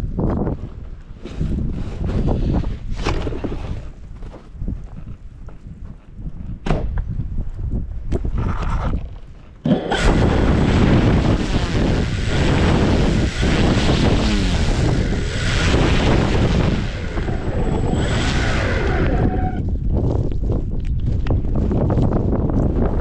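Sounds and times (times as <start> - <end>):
storm wind blasting microphone: 0.0 - 4.9, 6.2 - 23.0
faint steady high whine: 9.7 - 19.6.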